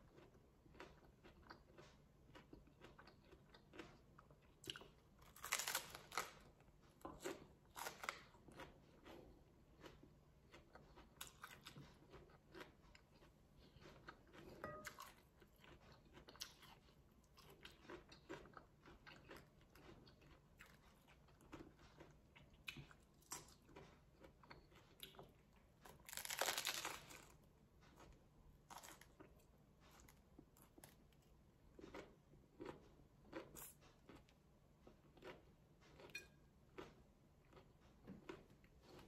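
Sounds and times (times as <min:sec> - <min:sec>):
crisp chewing crunches: 0:00.0 - 0:31.0.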